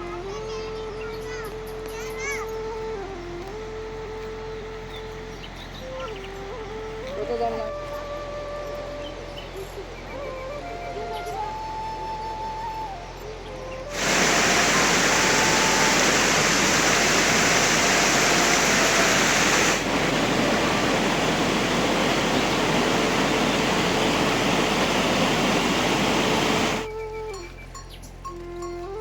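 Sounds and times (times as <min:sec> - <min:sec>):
water rushing: 0:13.9 - 0:26.9.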